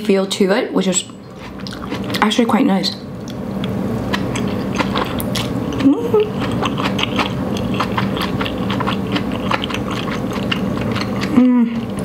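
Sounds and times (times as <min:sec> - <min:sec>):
chewing noodles: 0:01.1 - 0:02.3, 0:03.2 - 0:12.0
person humming: 0:05.8 - 0:06.4, 0:11.3 - 0:11.9.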